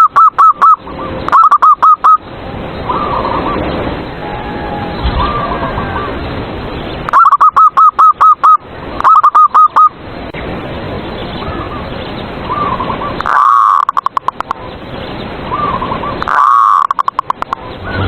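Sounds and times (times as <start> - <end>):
doves cooing: 2.9 - 6.3, 12.5 - 14.6, 15.5 - 18.0.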